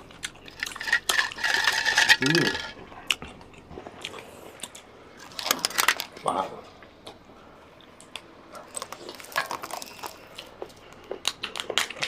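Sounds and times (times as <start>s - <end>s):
cutlery and shells clattering: 0.6s - 2.8s.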